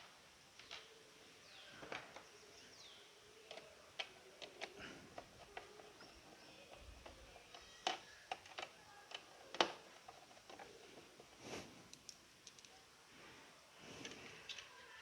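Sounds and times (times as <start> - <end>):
plastic parts clicking and knocking: 0.6 - 0.9, 1.7 - 2.4, 3.4 - 12.8, 14.0 - 15.0.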